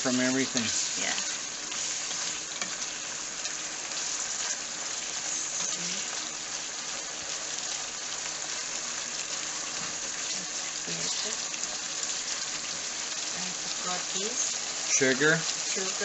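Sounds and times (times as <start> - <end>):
food sizzling in a pot: 0.0 - 16.0
wooden spatula stirring: 0.5 - 5.8.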